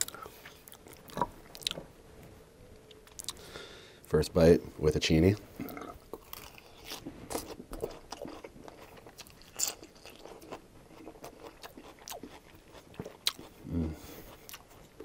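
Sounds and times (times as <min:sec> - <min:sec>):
crunchy chewing of lettuce: 0:05.6 - 0:15.0
person humming low: 0:13.6 - 0:14.2.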